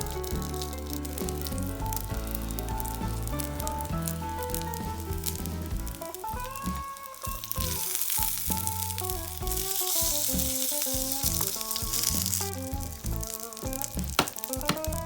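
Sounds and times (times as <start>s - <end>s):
background music with bass line: 0.0s - 15.0s
patty sizzling in a frying pan: 4.4s - 15.0s.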